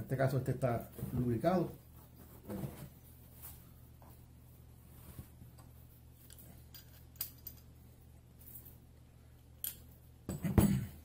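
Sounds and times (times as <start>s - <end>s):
faint steady hum: 0.0s - 11.0s
metal tools clattering: 6.2s - 7.8s.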